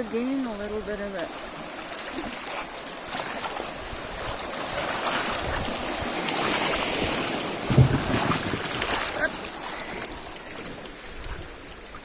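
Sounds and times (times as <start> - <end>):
river water rushing: 0.0 - 12.0
dull low thump: 7.6 - 8.9.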